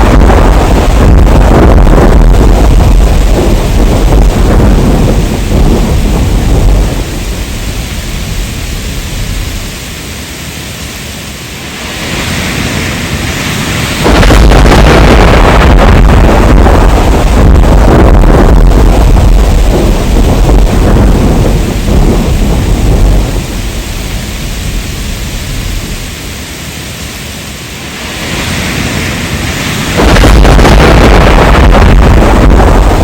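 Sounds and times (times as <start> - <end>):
heavy rain: 0.0 - 33.0
thunder rumbling: 0.0 - 33.0.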